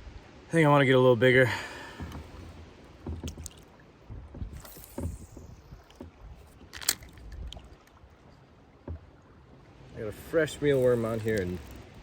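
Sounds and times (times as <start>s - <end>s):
light water sounds: 0.0s - 12.0s
small knocks on kayak: 2.0s - 7.6s, 8.8s - 9.2s.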